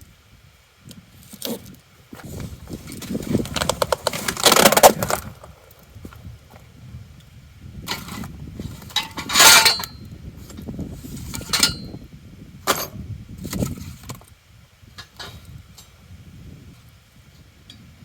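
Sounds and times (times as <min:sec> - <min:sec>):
rustling and scraping: 0:01.1 - 0:06.7, 0:07.9 - 0:12.0.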